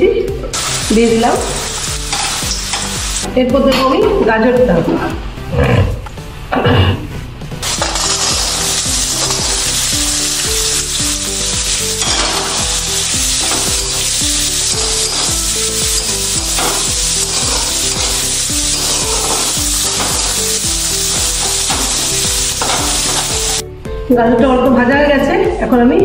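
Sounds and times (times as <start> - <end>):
vegetables sizzling in a wok: 0.5 - 3.3, 7.6 - 23.6
spatula scraping a pan: 12.0 - 23.6.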